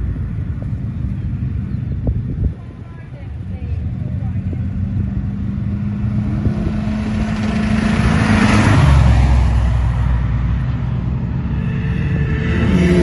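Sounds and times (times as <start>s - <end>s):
car engine passing by: 3.5s - 13.0s.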